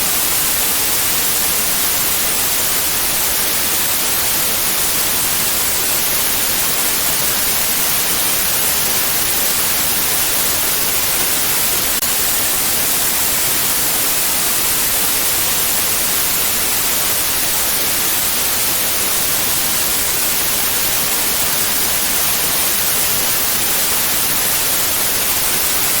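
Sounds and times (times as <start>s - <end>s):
white noise hiss: 0.0s - 26.0s.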